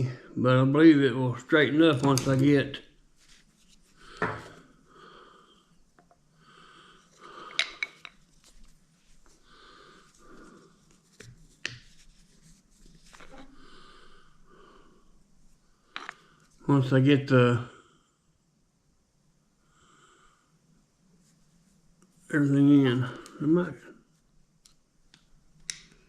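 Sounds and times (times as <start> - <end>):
man breathing hard: 4.0 - 5.8, 6.4 - 7.9, 9.4 - 10.8, 13.5 - 15.2.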